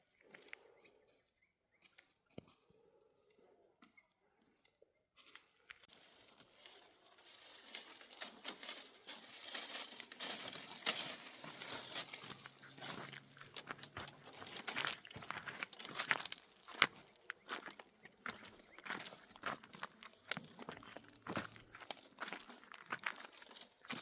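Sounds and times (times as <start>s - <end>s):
dense crinkling and crackling: 5.2s - 17.3s.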